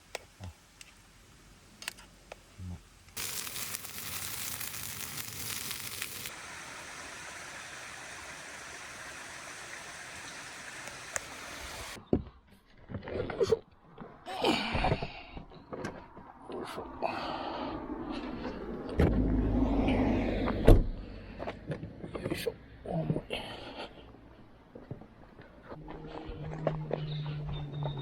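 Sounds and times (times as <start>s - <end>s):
small stream running: 3.2s - 12.0s.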